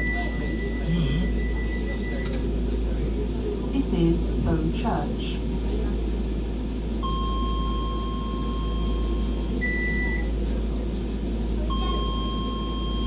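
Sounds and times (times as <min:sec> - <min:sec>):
train low hum: 0:00.0 - 0:13.0
electronic warning beeps: 0:11.7 - 0:13.0.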